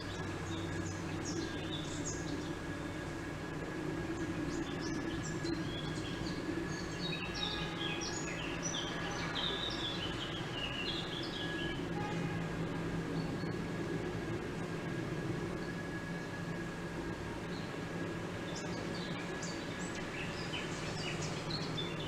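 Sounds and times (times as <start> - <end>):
small birds chirping: 0.0 - 11.8, 17.4 - 22.0
low outdoor background hum: 0.0 - 22.0.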